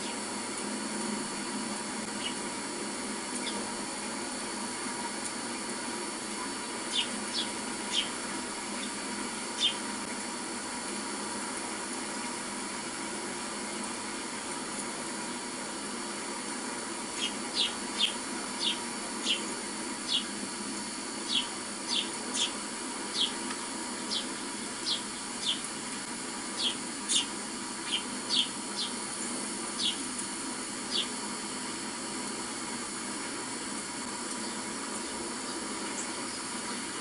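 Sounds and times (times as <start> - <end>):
small bird chirping on television: 2.2 - 2.4, 6.5 - 8.2, 8.8 - 9.9, 17.1 - 20.4, 21.2 - 23.4, 24.0 - 25.7, 26.6 - 29.0, 29.8 - 30.1, 30.9 - 31.2.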